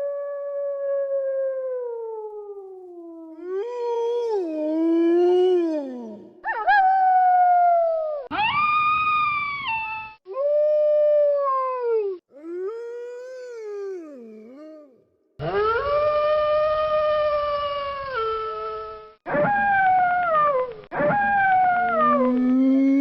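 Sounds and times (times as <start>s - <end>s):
wolves howling: 21.0s - 23.0s.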